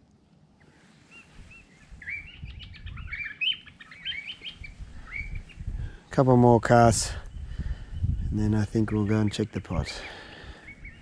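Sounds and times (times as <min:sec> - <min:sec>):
bird singing rapid chirps: 0:01.1 - 0:05.8, 0:06.5 - 0:11.0.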